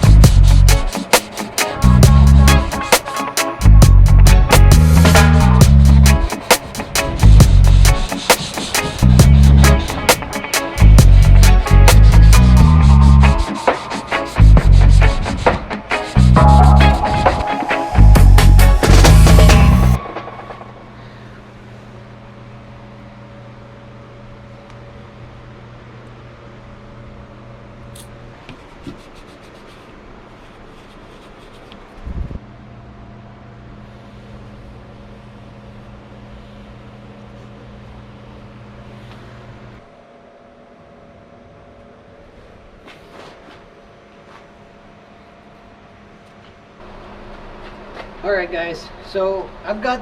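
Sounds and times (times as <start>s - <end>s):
music: 0.0s - 20.7s
low fixed tones: 16.4s - 20.9s.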